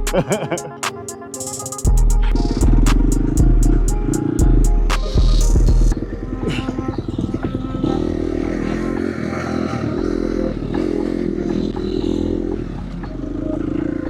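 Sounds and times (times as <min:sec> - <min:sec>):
dirt bike engine revving: 0:05.9 - 0:14.0.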